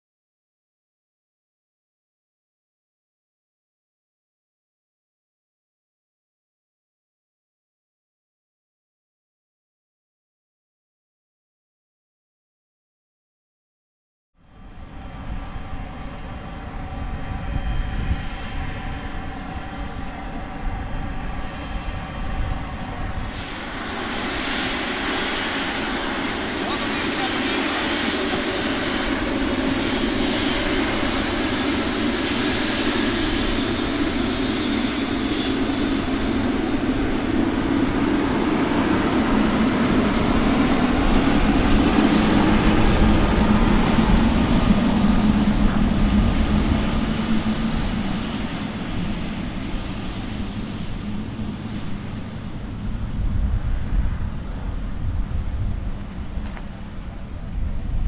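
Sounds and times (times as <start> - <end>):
jet airliner passing: 14.5 - 58.0.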